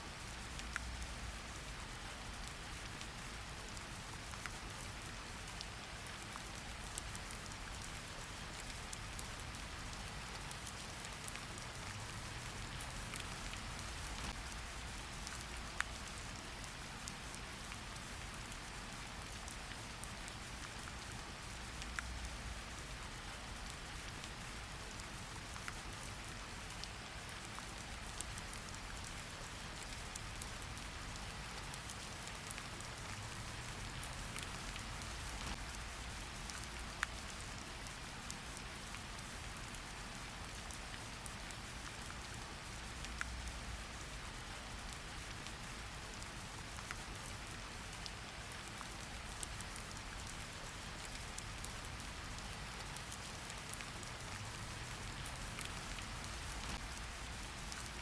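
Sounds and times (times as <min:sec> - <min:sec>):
rain on hard surfaces: 0:00.0 - 0:58.0.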